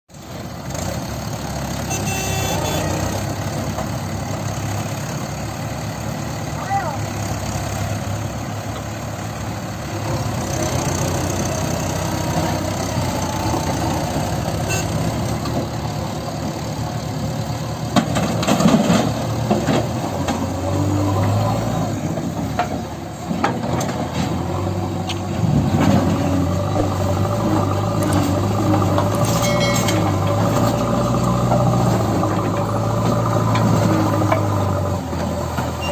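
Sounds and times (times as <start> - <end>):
heavy diesel engines running: 0.1 - 35.9
sharp metal clanks: 29.2 - 30.4.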